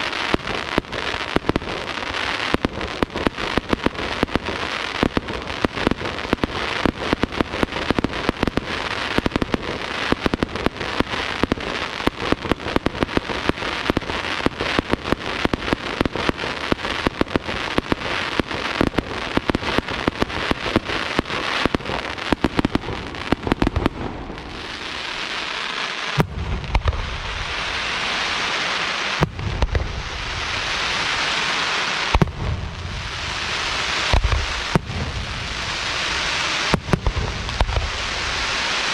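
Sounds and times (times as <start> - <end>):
fireworks crackling: 0.0 - 38.9
hissing crackle: 0.0 - 38.9
deep firework shell bursts: 26.2 - 28.3, 29.2 - 31.4, 32.1 - 38.9.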